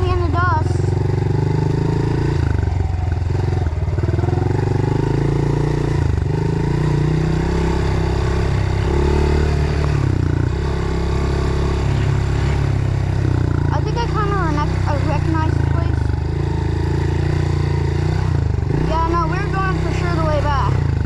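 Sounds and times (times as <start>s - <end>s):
off-road engine revving: 0.0s - 21.0s.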